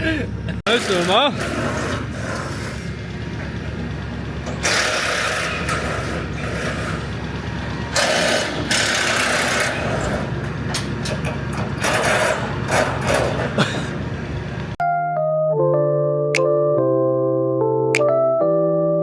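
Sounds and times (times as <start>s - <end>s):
diesel engine running: 0.0s - 14.8s
loud scraping rushing noise: 0.7s - 3.4s, 4.6s - 7.4s, 8.0s - 10.4s, 11.8s - 13.6s.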